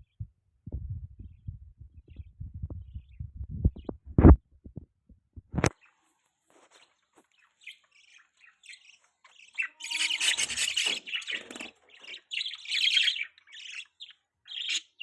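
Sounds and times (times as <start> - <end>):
budgie chirping: 7.5 - 15.0.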